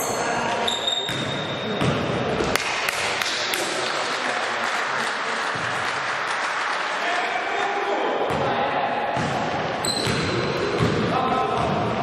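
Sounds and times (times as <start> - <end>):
spectators applauding: 2.6 - 7.9.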